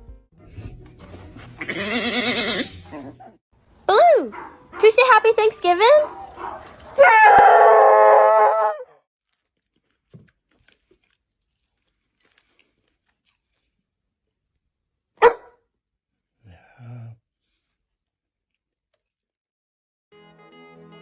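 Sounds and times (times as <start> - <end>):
dog howling: 5.8 - 9.0.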